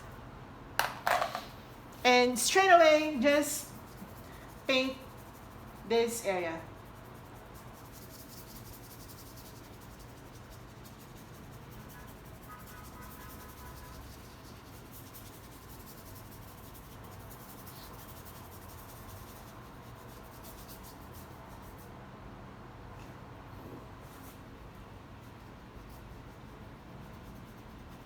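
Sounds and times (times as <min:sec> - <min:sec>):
paintbrush strokes on canvas: 0:24.0 - 0:28.0.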